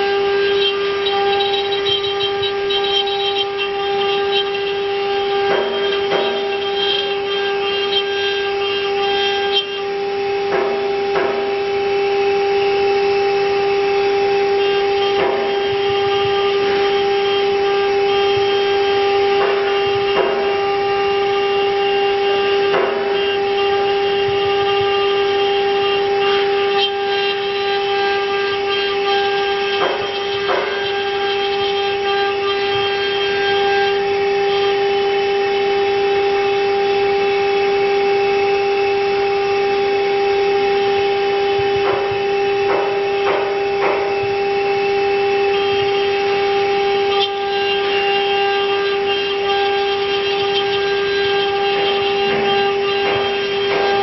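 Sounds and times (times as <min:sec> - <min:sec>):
short scraping bursts: 0:00.0 - 0:11.6
router spindle whining: 0:00.0 - 0:54.0.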